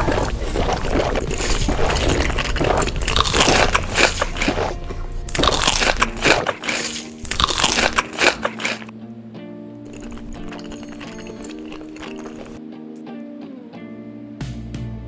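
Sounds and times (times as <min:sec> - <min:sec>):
crunching crisp food: 0:00.0 - 0:08.9, 0:09.9 - 0:12.6.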